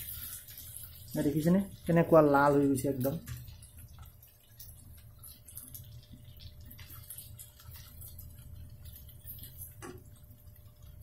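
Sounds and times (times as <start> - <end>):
curry sizzling in oil: 0.0 - 11.0
ladle stirring: 0.0 - 11.0.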